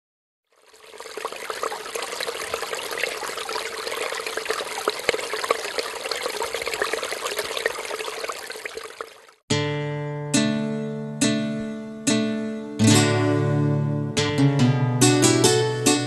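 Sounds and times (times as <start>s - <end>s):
water dripping: 0.5s - 9.4s
water running and splashing: 0.5s - 9.4s.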